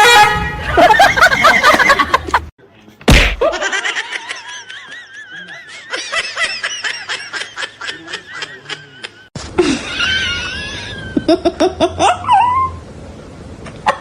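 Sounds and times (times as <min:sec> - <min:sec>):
people laughing: 0:00.6 - 0:02.5, 0:03.4 - 0:12.0.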